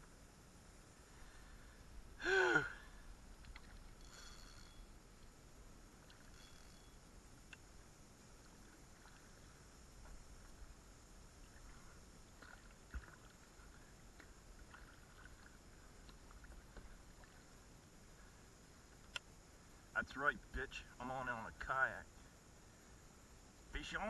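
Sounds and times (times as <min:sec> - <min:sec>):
faint wind: 0:00.0 - 0:24.0
water around a kayak: 0:00.0 - 0:24.0
light ticks: 0:07.5 - 0:07.7, 0:18.9 - 0:19.3.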